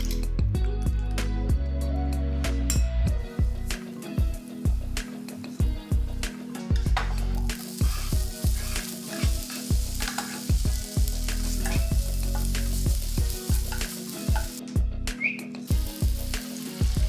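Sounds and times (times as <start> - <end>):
background music with steady beat: 0.0 - 17.0
food sizzling in a pan: 3.2 - 14.7, 15.7 - 17.0
pan being stirred: 3.3 - 14.6, 15.7 - 17.0.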